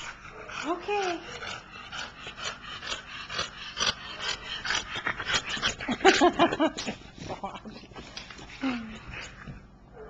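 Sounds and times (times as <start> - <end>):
dog breathing hard: 0.0 - 6.4.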